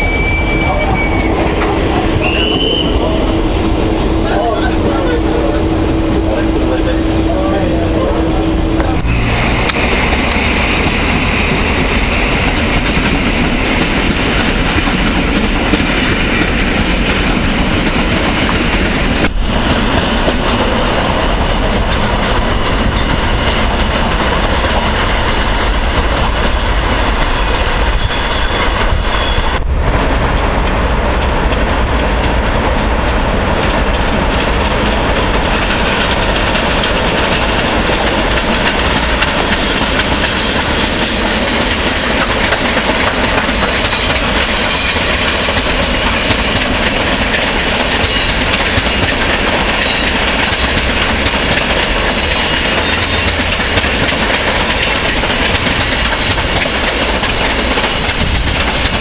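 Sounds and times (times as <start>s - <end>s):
high wheel squeal: 0.0s - 3.4s, 27.1s - 29.6s
train wheels clattering: 0.0s - 59.0s.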